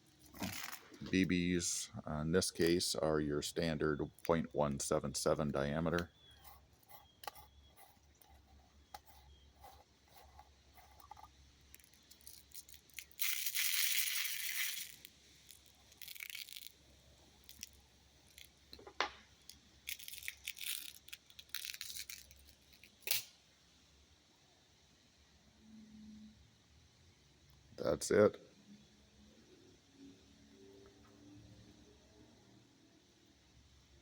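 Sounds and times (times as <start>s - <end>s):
metal bbs rattling: 0.2s - 1.1s, 9.7s - 16.8s, 19.9s - 23.0s.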